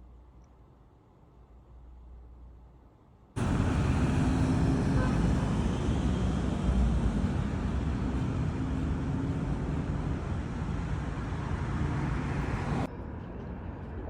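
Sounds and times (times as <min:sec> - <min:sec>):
rumbling vehicle noise: 0:03.4 - 0:14.0.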